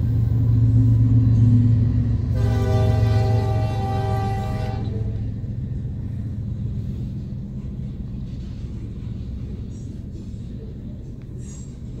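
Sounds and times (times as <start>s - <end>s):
freight cars rumbling past: 0.0s - 12.0s
locomotive horn: 2.3s - 5.3s.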